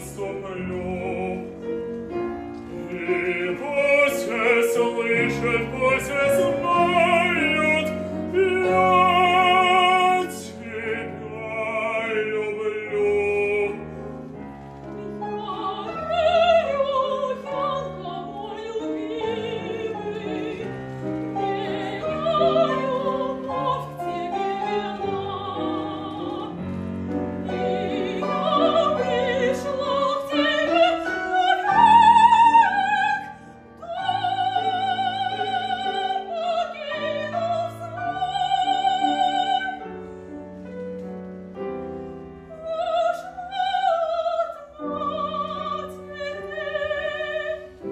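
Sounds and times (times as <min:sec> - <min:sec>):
piano accompaniment: 0:00.0 - 0:47.9.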